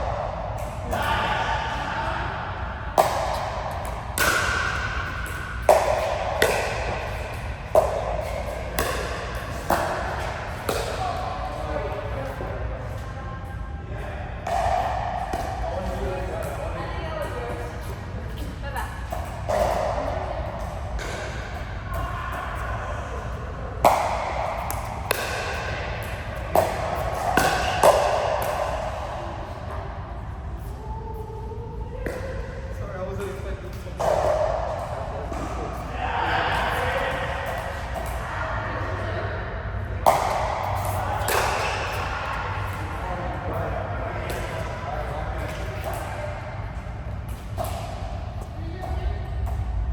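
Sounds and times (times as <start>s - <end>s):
sharp hits ringing in a hall: 0.0s - 31.0s.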